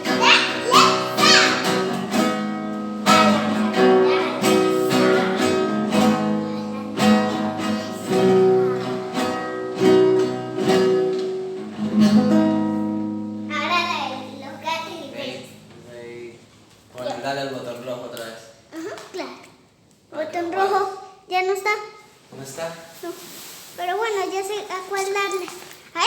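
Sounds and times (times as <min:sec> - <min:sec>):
acoustic guitar strummed: 0:00.0 - 0:16.5.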